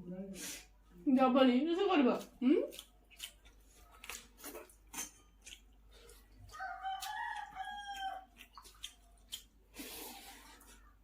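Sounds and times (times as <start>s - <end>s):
rooster crowing: 6.5s - 8.3s.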